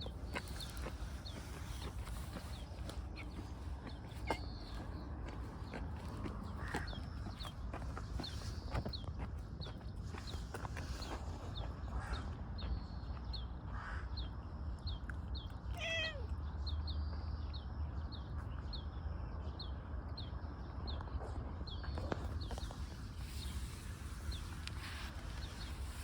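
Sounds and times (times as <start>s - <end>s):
cat mewing: 15.7s - 16.3s.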